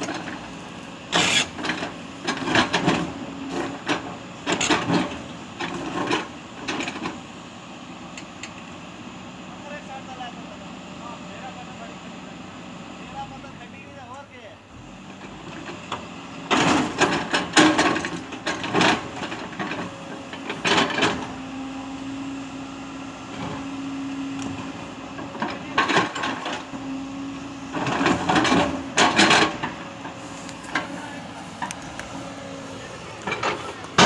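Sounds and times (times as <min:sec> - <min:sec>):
excavator bucket scraping stone: 0:00.0 - 0:05.2, 0:24.5 - 0:34.0
engine hum: 0:00.0 - 0:34.0.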